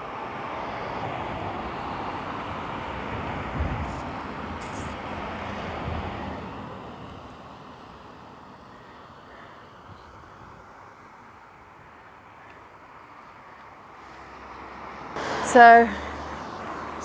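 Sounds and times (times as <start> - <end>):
steady rushing outdoor noise: 0.0 - 17.0
wind thump on microphone: 3.2 - 6.2.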